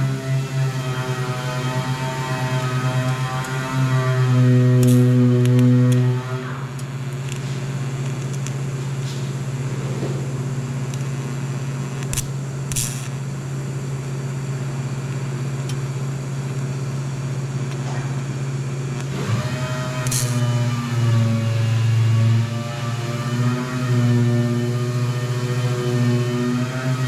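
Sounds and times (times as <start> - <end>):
welder arc buzzing: 0.0 - 27.0
welding arc crackles: 0.5 - 16.9, 20.0 - 20.4.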